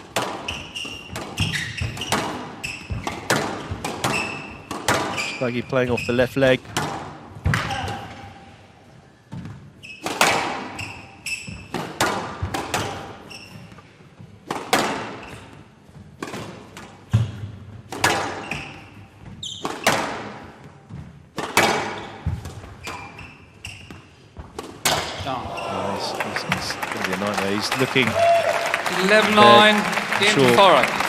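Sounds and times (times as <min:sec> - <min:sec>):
squash ball hitting rackets and walls: 0:00.0 - 0:05.4, 0:06.4 - 0:08.4, 0:09.2 - 0:25.6
shoes squeaking on court floor: 0:00.0 - 0:06.8, 0:07.6 - 0:26.0.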